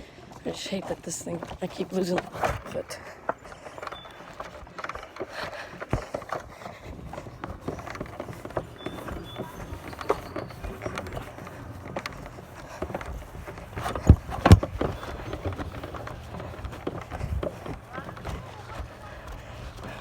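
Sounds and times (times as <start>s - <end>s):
footsteps: 0.0s - 20.0s
knocks and rattles of handling: 0.7s - 20.0s
heavy thumps: 6.0s - 19.9s.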